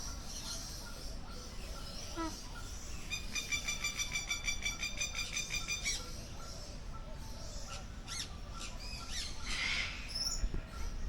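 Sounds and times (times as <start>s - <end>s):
bird squawk: 7.7s - 10.3s.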